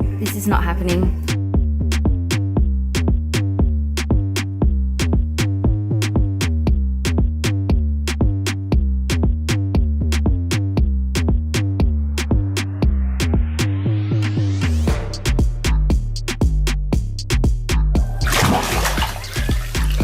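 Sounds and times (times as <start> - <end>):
drum machine beat: 0.0 - 13.6, 14.9 - 20.0
heavy steady bass: 0.0 - 20.0.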